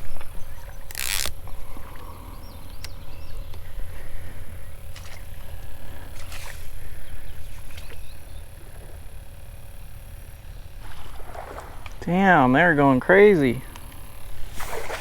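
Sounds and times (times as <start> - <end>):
faint clicks: 0.0 - 8.9.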